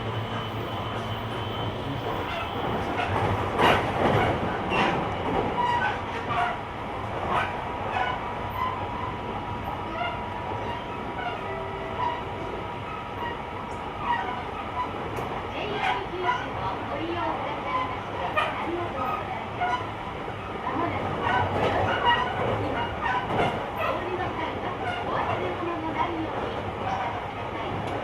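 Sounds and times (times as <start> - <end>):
train rolling noise with whine: 0.0 - 15.9.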